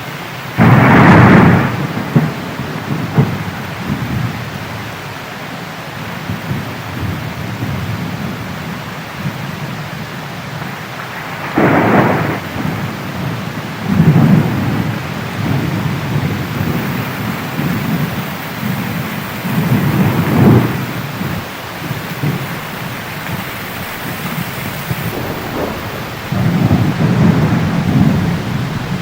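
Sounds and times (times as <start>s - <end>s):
heavy rain: 0.0s - 29.0s
thunderclap: 0.6s - 4.1s, 19.0s - 29.0s
rolling thunder rumbles: 19.0s - 29.0s.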